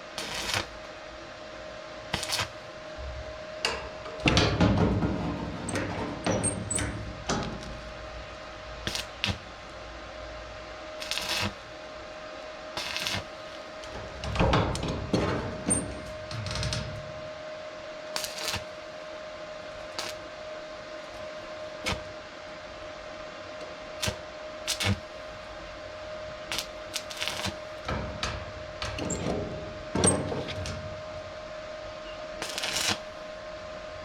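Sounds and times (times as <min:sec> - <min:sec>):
faint steady hum: 0:00.0 - 0:34.0
tools and metal knocking: 0:27.9 - 0:30.9.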